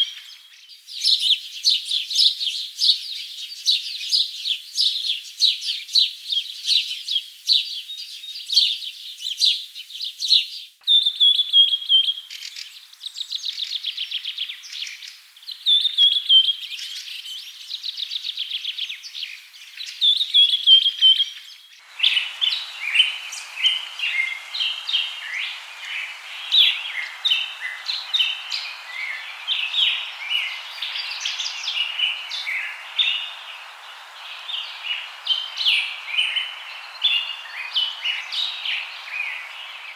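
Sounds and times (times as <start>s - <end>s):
birds chirping and singing: 20.2s - 39.9s
steady background hiss: 21.8s - 39.9s.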